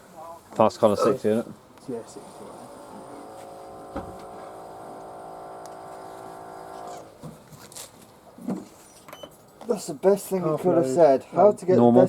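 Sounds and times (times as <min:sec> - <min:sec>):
washing machine electrical hum: 0:01.9 - 0:07.2.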